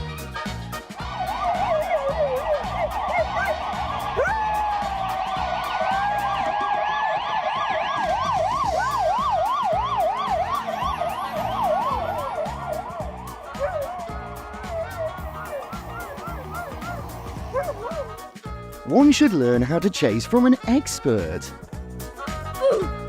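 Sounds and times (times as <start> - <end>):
background music with steady beat: 0.0 - 23.0
siren wailing and yelping: 1.0 - 18.3.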